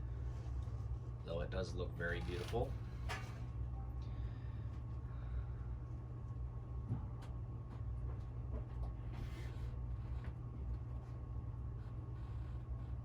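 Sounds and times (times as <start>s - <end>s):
ceiling fan humming: 0.0s - 13.0s.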